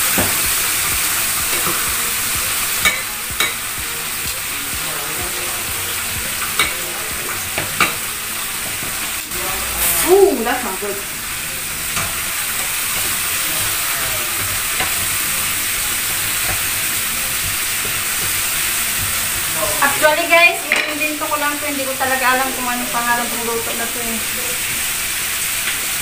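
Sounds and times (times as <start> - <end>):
food sizzling in a frying pan: 0.0 - 26.0
utensil clicking against pan: 6.4 - 6.8
brief wavering pitched sound: 9.3 - 10.8.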